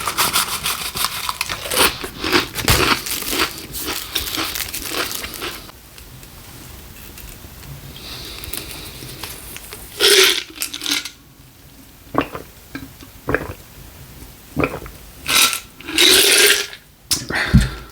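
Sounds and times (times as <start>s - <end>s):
close eating sounds: 0.0s - 5.8s.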